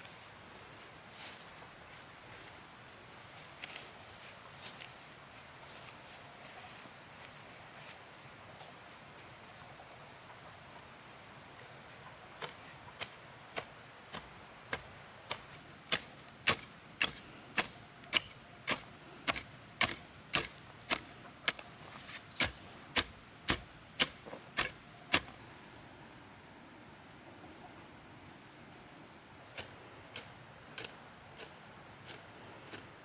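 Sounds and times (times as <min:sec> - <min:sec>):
hand tool chopping strokes: 0:12.4 - 0:25.4, 0:29.5 - 0:33.0.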